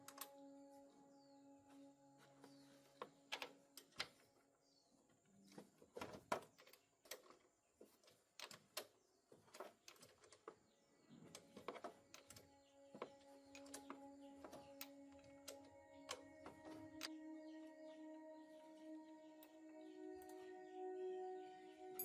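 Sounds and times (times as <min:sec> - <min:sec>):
faint irregular clicks and taps: 0:05.5 - 0:17.2.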